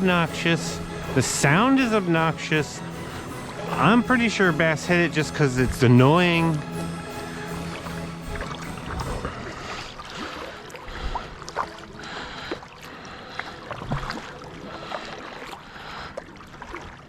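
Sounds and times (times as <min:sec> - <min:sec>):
water splashing and gurgling: 0:00.0 - 0:17.0.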